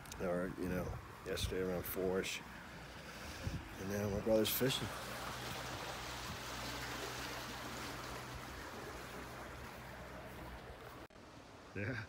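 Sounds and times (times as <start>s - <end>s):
water rushing: 0.0s - 11.8s.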